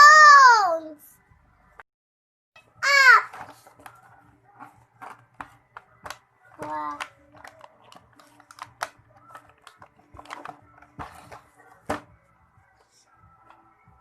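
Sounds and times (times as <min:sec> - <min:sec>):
clicks and rustling of packaging: 0:03.3 - 0:12.1.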